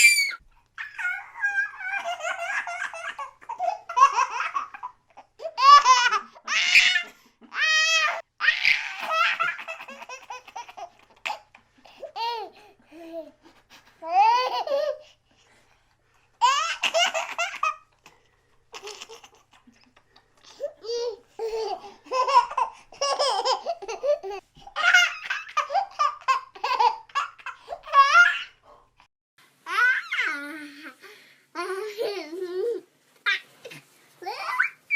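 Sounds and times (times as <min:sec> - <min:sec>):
baby laughing: 0:00.0 - 0:13.3, 0:14.0 - 0:15.1, 0:16.4 - 0:18.1, 0:18.7 - 0:28.6.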